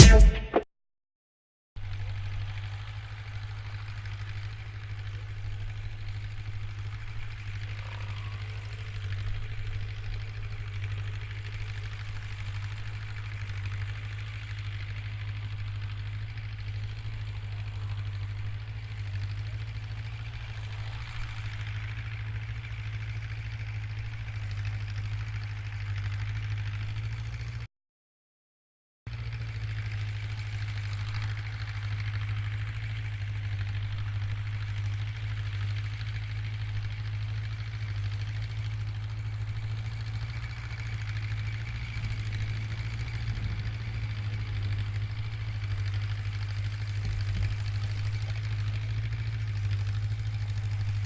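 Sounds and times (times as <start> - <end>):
tractor engine idling: 1.8 - 27.7, 29.1 - 51.0.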